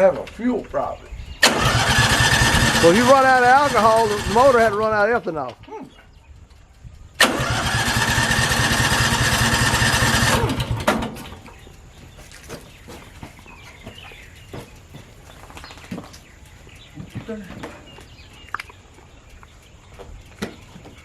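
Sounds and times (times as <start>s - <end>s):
sawmill engine starting and dying: 1.4s - 5.2s, 7.2s - 11.7s.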